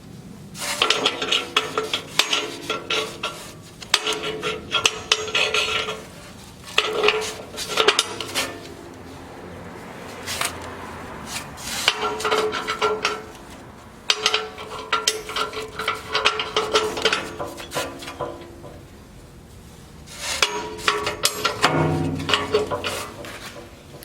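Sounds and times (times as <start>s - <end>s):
metal stove parts clinking: 0.8s - 8.9s, 11.8s - 13.4s, 14.1s - 18.9s, 20.2s - 24.0s
faint metallic ringing: 20.3s - 24.0s.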